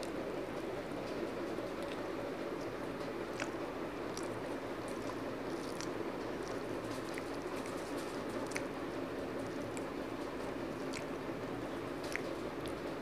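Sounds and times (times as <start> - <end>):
low background hum: 0.0 - 13.0
person chewing food: 2.6 - 8.8, 10.7 - 11.2, 12.0 - 12.9
wet mouth clicks and smacks: 3.3 - 7.8, 8.4 - 8.7, 10.8 - 11.2, 12.0 - 12.8.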